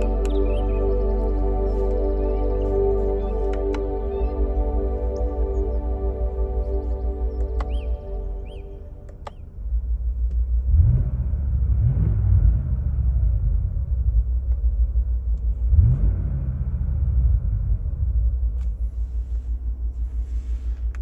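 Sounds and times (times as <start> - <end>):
car engine revving: 10.5 - 14.4, 15.4 - 18.2.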